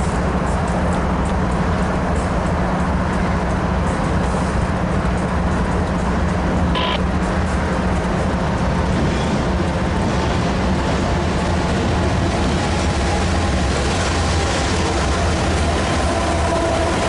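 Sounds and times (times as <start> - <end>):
diesel locomotive engine drone: 0.0 - 17.0
freight train passing: 0.0 - 17.0.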